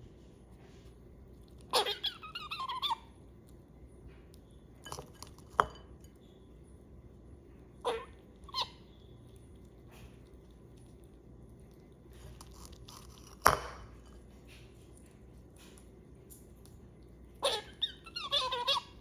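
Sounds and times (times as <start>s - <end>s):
squirrel squeaks: 1.7s - 3.1s, 7.8s - 9.2s, 17.4s - 19.0s
squirrel squealing: 1.7s - 3.2s, 7.8s - 9.1s, 17.4s - 19.0s.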